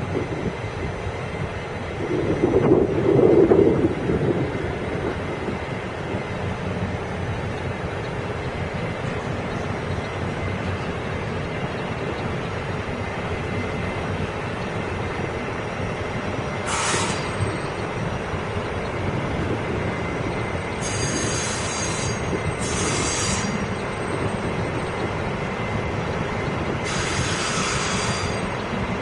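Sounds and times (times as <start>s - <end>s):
train rumbling through station: 0.0s - 29.0s
high-pitched metallic squeals: 16.7s - 17.9s, 20.6s - 25.0s, 26.8s - 28.6s.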